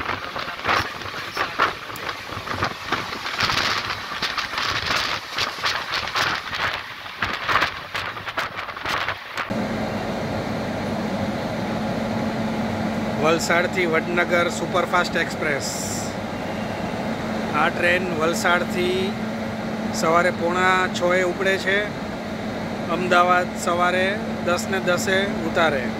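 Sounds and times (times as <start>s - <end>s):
passenger train running at speed: 0.0s - 25.9s
steady even hum: 9.5s - 25.9s.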